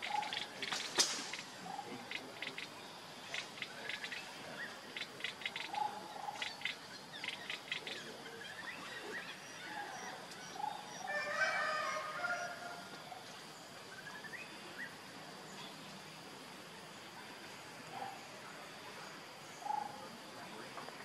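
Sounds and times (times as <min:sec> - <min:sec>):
birds clicking chirps: 0:00.0 - 0:11.1.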